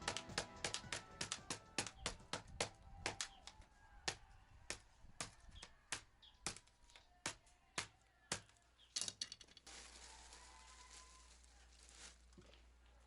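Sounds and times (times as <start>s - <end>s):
background music: 0.0s - 2.8s
sharp irregular taps: 0.0s - 3.4s.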